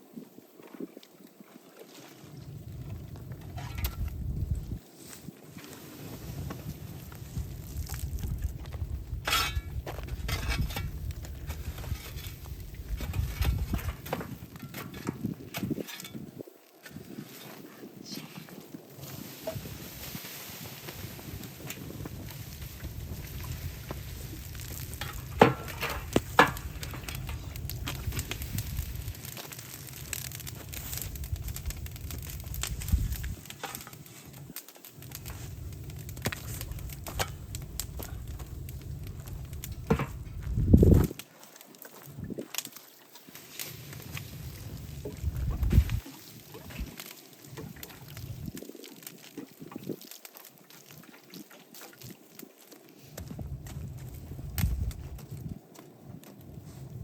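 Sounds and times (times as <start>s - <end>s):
bonfire crackling: 1.7s - 57.0s
low fire rumble: 2.2s - 57.0s
wind buffeting microphone: 2.3s - 4.8s, 6.0s - 17.2s, 17.8s - 33.6s, 35.0s - 41.2s, 43.8s - 46.9s, 53.2s - 55.6s
sharp snaps and pops: 6.4s - 17.0s, 20.8s - 57.0s.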